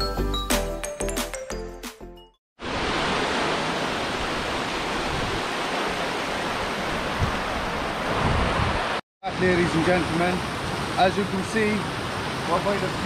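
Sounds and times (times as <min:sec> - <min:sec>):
waterfall rushing: 0:02.6 - 0:13.0.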